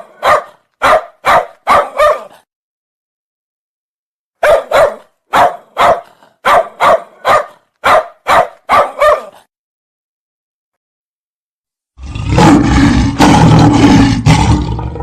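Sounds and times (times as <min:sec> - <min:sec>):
dog barking: 0:00.0 - 0:02.5, 0:04.4 - 0:09.5.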